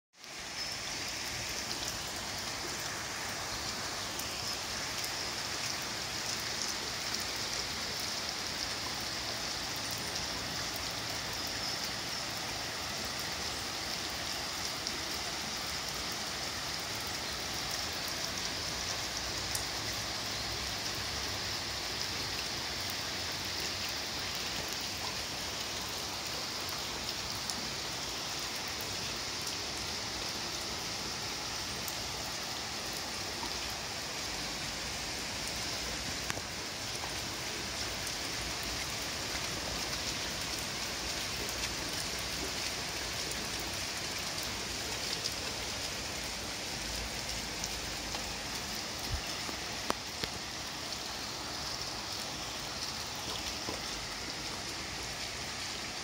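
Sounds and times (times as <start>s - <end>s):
steady rain falling: 0.1s - 56.0s
raindrop ticks: 36.2s - 37.2s, 47.2s - 50.5s.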